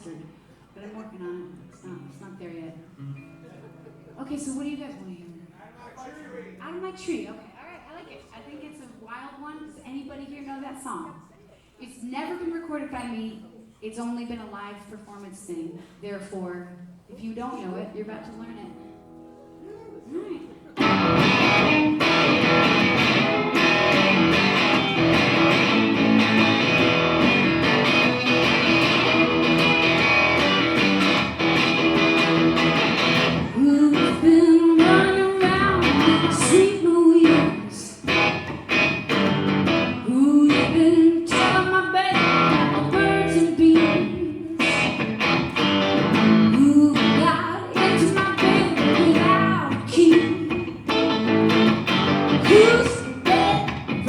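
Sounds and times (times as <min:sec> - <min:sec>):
strummed guitar: 0:02.0 - 0:04.8, 0:18.7 - 0:54.0
woman singing: 0:33.5 - 0:38.1, 0:40.0 - 0:44.7, 0:46.4 - 0:50.7, 0:52.3 - 0:54.0.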